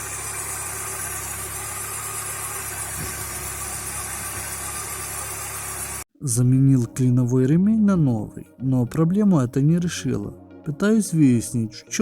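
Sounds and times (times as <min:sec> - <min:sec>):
alternator belt noise: 0:00.0 - 0:06.1
car engine idling: 0:00.0 - 0:06.1.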